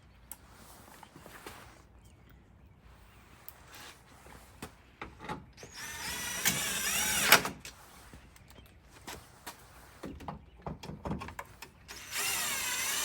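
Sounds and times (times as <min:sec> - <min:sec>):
cordless power driver whining: 0:05.6 - 0:07.6, 0:11.9 - 0:13.0.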